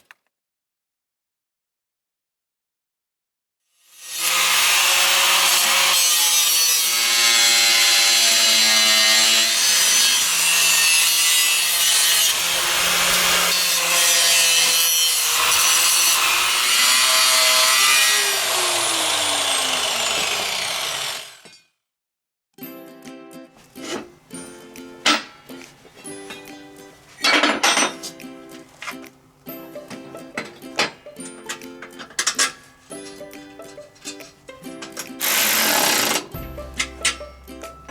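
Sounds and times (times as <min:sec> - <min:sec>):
power tool grinding metal: 0:03.8 - 0:21.5, 0:29.9 - 0:37.9.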